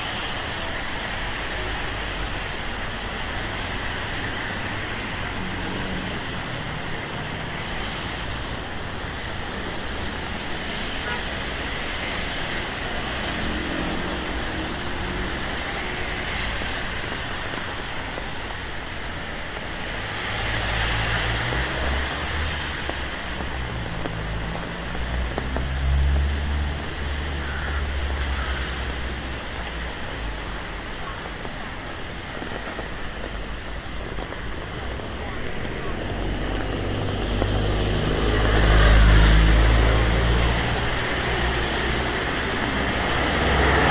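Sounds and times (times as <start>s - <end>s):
rain hissing on street: 0.0s - 43.9s
road traffic passing: 0.0s - 43.9s
low engine rumble: 21.2s - 43.9s.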